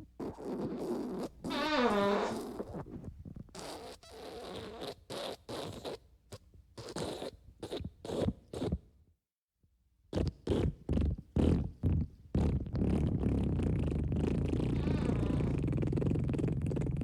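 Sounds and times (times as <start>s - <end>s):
fart sounds: 0.2s - 6.0s, 10.1s - 17.0s.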